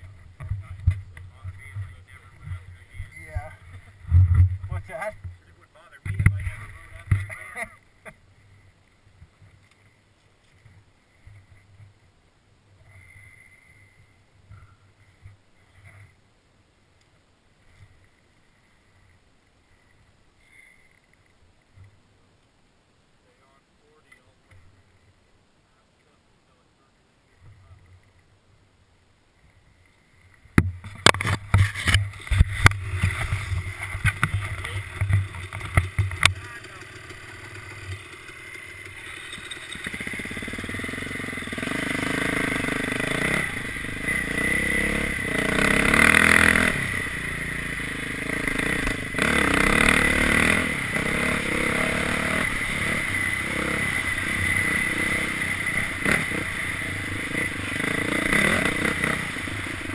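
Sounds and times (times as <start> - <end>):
sharp knocks and clatter: 30.5 - 40.1
dirt bike engine revving: 30.8 - 59.9.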